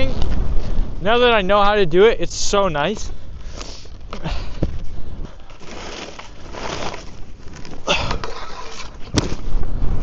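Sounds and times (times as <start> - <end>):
ski edges scraping on snow: 5.4 - 9.2.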